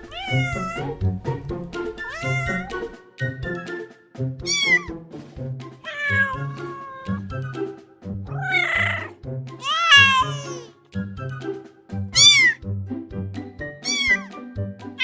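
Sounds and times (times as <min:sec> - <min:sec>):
kitten meowing: 0:00.0 - 0:00.9, 0:02.0 - 0:02.8, 0:04.5 - 0:04.9, 0:05.8 - 0:07.6, 0:08.3 - 0:10.7, 0:12.1 - 0:12.6, 0:13.8 - 0:14.3
background music: 0:00.0 - 0:15.0.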